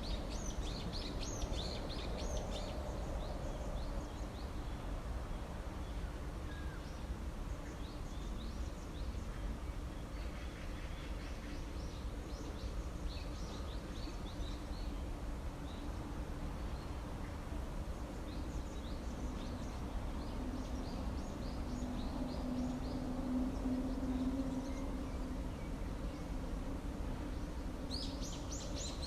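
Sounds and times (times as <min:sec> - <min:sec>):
low steady hum: 0:00.0 - 0:29.0
small birds chirping: 0:27.2 - 0:29.0.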